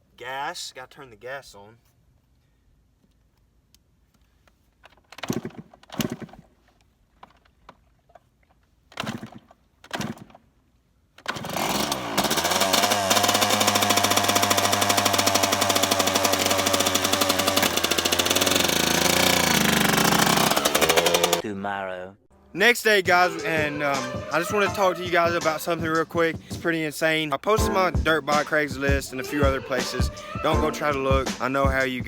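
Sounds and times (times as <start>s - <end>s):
dirt bike kick-start kicks: 4.8s - 8.2s, 8.9s - 10.5s, 11.2s - 21.4s
dirt bike engine idling: 12.2s - 21.4s.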